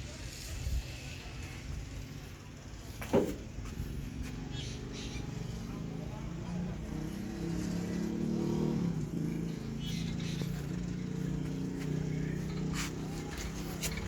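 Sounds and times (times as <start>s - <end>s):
diesel engine idling: 2.5s - 14.0s.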